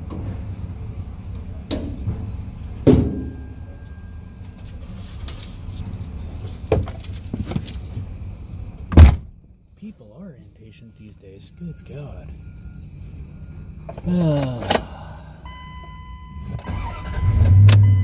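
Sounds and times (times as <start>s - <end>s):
car engine idling: 0.0s - 18.0s
knocks and thumps inside car: 8.9s - 9.3s.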